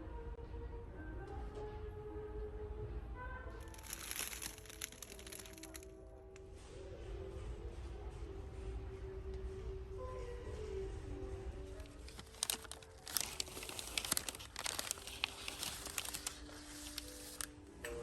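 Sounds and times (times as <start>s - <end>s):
soft background music: 0.0s - 18.0s
dried flowers crackling: 3.6s - 5.9s, 11.7s - 17.6s.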